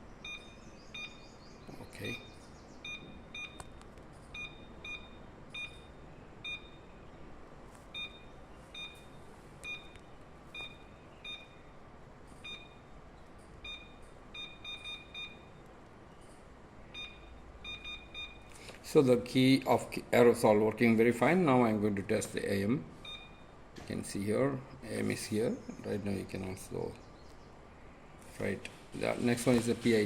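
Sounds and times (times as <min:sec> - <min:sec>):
electronic keypad beeps: 0:00.2 - 0:01.4, 0:02.1 - 0:06.9, 0:07.9 - 0:11.7, 0:12.4 - 0:12.9, 0:13.6 - 0:15.7, 0:16.9 - 0:18.5, 0:23.0 - 0:23.6.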